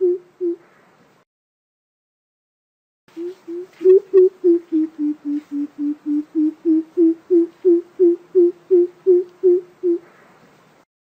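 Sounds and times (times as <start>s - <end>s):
bird hooting call: 0.0s - 0.7s, 3.1s - 10.2s.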